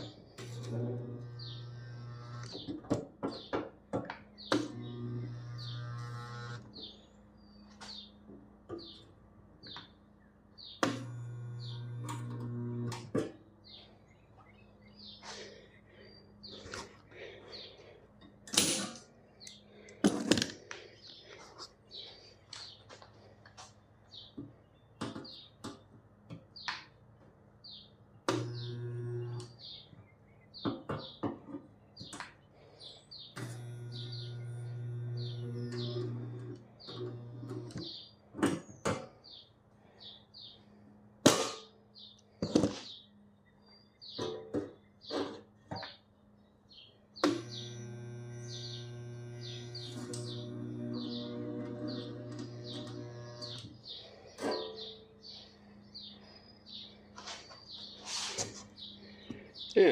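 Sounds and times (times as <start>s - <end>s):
electric machine hum: 0.0s - 2.8s, 4.4s - 7.5s, 10.6s - 13.2s, 28.3s - 29.7s, 33.3s - 38.1s, 47.2s - 54.3s
welder buzzing: 0.0s - 2.8s, 4.5s - 6.9s, 10.8s - 13.2s, 28.3s - 29.6s, 33.4s - 37.9s, 47.2s - 54.0s
bird chirping: 0.0s - 3.6s, 4.3s - 12.9s, 27.6s - 40.8s, 41.9s - 59.9s.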